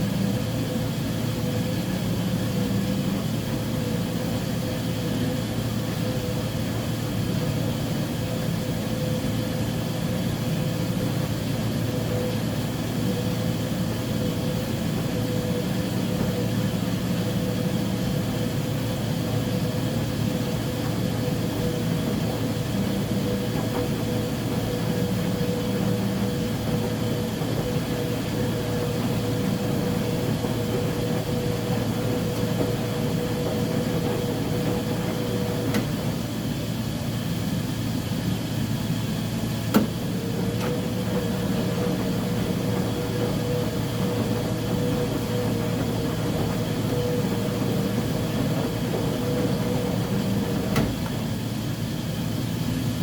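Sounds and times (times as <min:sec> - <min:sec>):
high mechanical whine: 0:00.0 - 0:53.0
washing machine hum: 0:00.0 - 0:53.0.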